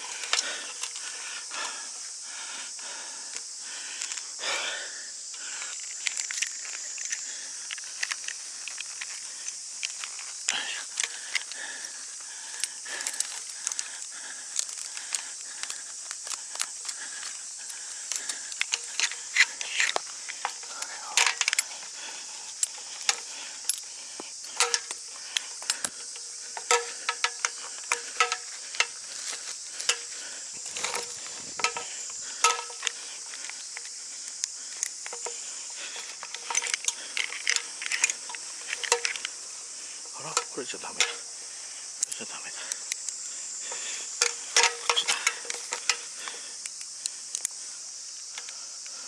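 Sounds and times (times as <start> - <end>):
high-pitched insect drone: 0.0 - 49.0
metallic clicks of gear handled: 5.7 - 11.6, 18.0 - 21.8, 36.0 - 39.4, 44.1 - 47.6.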